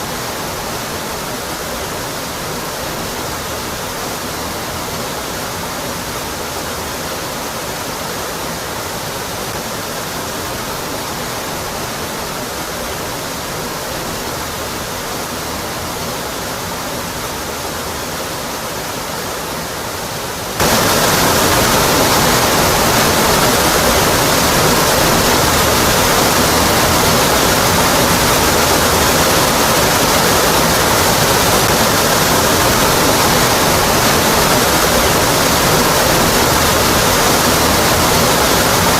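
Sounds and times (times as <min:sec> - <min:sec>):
waterfall pouring onto rock: 0:20.6 - 0:38.9.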